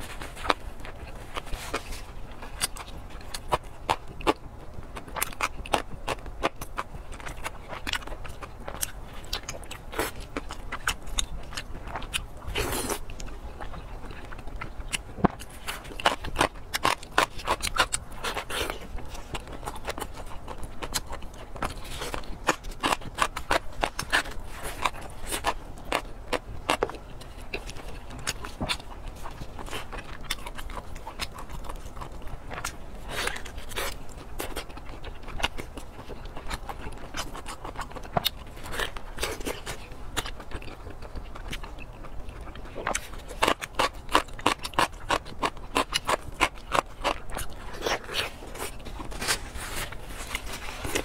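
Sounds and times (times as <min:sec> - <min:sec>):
wet chewing and lip-smacking: 0:00.0 - 0:51.0.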